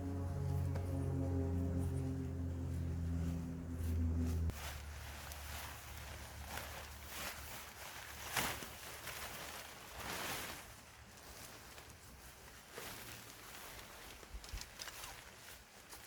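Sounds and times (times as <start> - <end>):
rustling and scuffing: 3.8 - 14.1.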